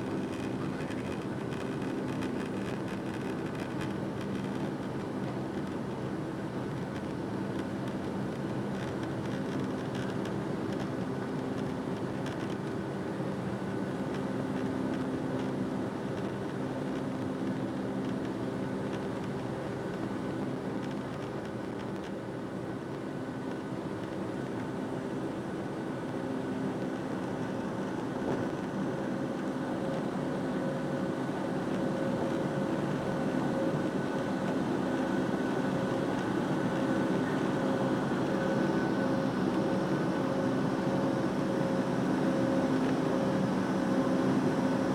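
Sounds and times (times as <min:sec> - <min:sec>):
jet engines running: 0:26.8 - 0:44.9.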